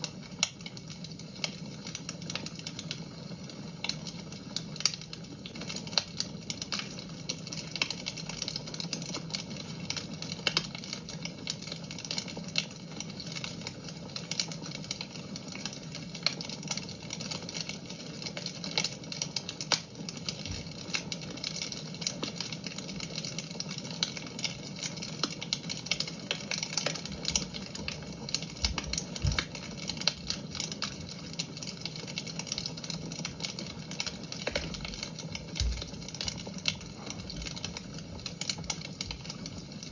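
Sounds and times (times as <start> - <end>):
fire crackling and popping: 0.0 - 39.9
soft low thuds: 34.6 - 38.4.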